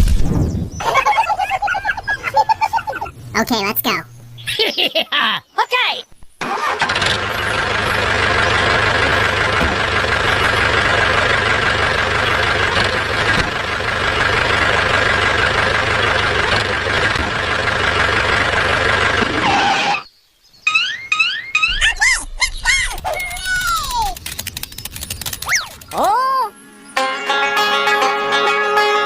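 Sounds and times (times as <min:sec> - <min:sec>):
engine running with high whine: 0:06.6 - 0:20.0.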